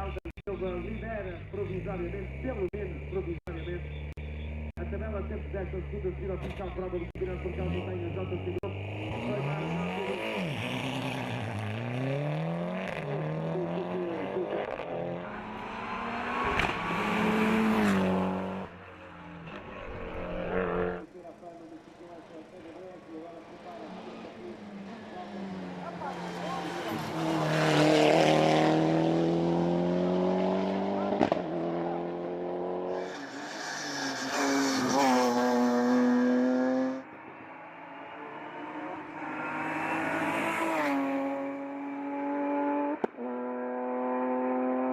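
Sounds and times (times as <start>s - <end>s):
race car engine accelerating: 7.4s - 21.1s, 23.4s - 44.9s.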